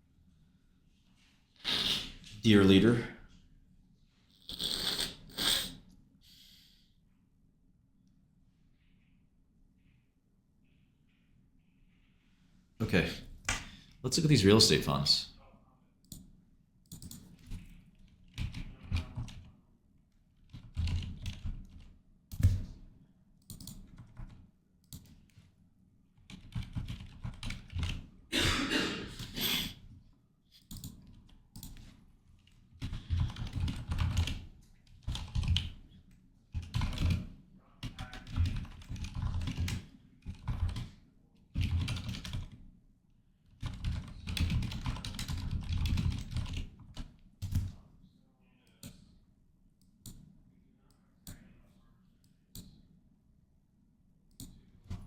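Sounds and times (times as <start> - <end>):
typing on computer keyboard: 16.9 - 19.6, 20.4 - 22.8, 23.4 - 25.4, 26.2 - 28.1, 30.6 - 35.9, 36.5 - 42.6, 43.5 - 47.8.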